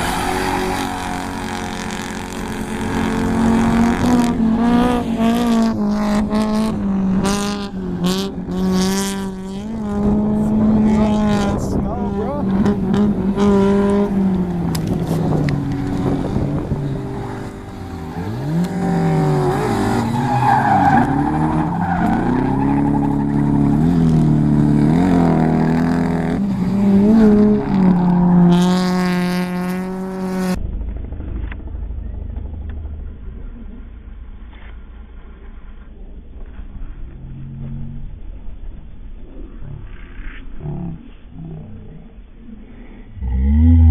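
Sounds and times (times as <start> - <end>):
truck engine revving: 0.0 - 33.7.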